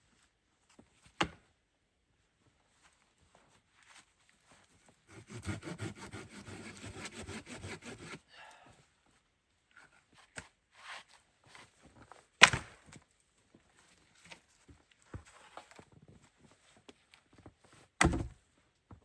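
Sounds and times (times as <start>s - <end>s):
hand saw rasping through wood: 5.1s - 8.2s
sharp crack of wood: 12.4s - 13.0s, 18.0s - 18.4s.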